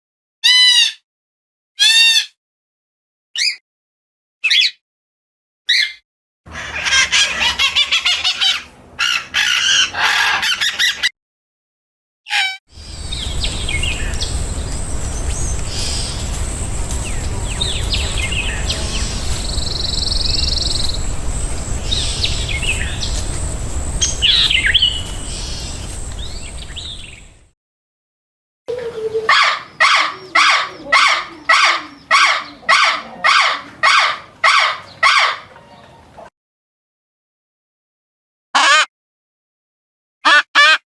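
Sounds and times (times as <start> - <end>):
repeated bird calls: 5.7 - 11.1, 12.3 - 27.4, 28.7 - 36.1
low rumble: 12.8 - 27.5
songbirds chirping: 12.8 - 27.5, 28.7 - 36.3.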